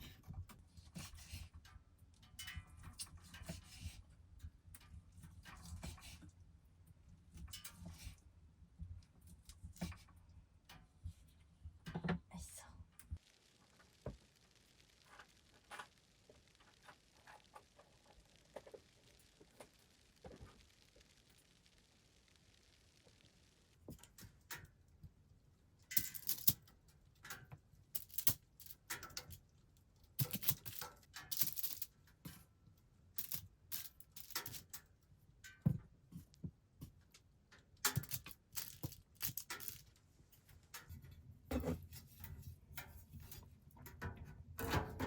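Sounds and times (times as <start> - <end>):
small objects clicking and clinking: 25.8 - 29.4, 30.0 - 32.2, 33.2 - 34.8, 37.8 - 40.0.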